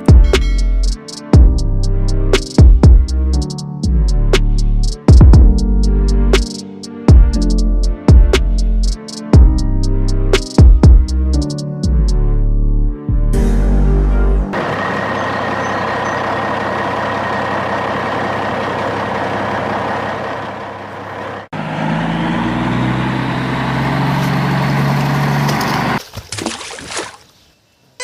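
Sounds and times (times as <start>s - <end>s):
truck engine drone: 0.1s - 2.4s, 13.4s - 26.0s
truck engine revving: 13.8s - 26.0s.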